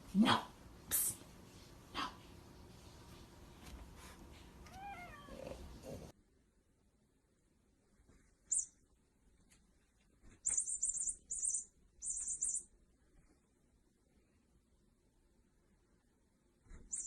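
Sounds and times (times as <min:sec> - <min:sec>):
small bird twittering: 0:08.5 - 0:08.8, 0:10.4 - 0:12.7.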